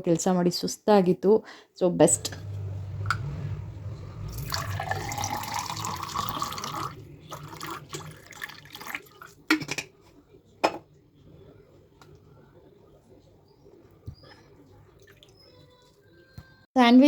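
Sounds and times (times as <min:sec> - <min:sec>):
tap water running into vessel: 0:04.3 - 0:09.7.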